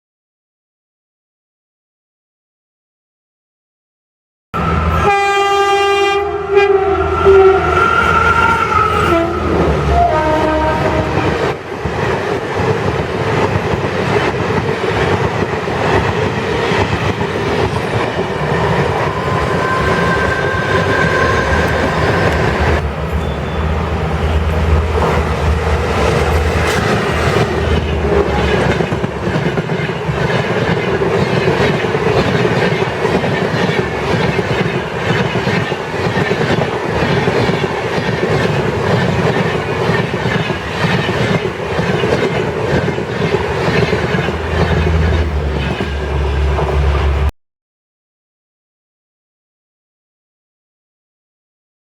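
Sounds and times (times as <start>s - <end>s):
locomotive horn: 4.6s - 11.5s, 27.8s - 28.8s
train rumbling over rails: 4.6s - 47.3s.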